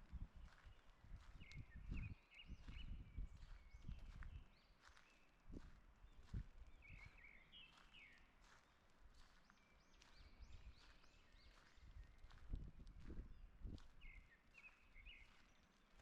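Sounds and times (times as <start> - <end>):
footsteps on path: 0.0 - 16.0
songbirds chirping: 0.0 - 16.0.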